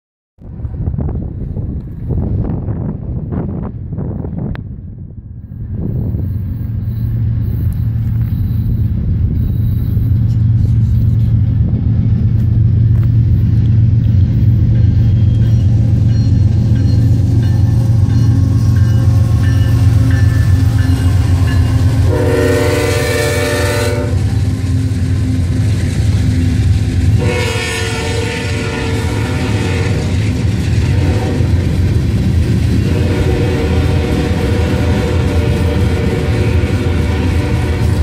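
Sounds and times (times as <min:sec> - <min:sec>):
diesel locomotives rumbling: 0:00.4 - 0:38.0
locomotive horn: 0:17.8 - 0:26.0, 0:27.1 - 0:31.8, 0:32.8 - 0:38.0.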